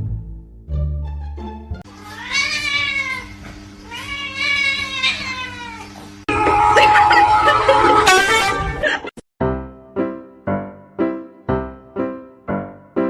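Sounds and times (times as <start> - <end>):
background music: 0.0 - 1.8, 6.3 - 13.0
cat meowing: 1.9 - 6.0
louder busier sound: 6.3 - 9.2.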